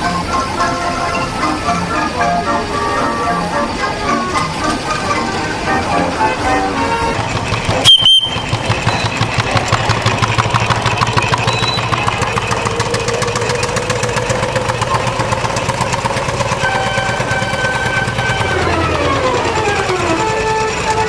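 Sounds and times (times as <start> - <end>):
engine running: 0.0 - 21.0.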